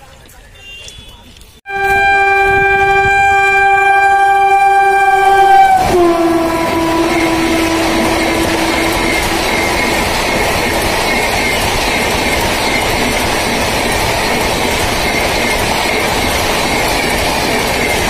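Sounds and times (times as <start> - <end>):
locomotive horn blast: 0.6 - 10.2
train wheels clattering on rail: 5.6 - 18.0.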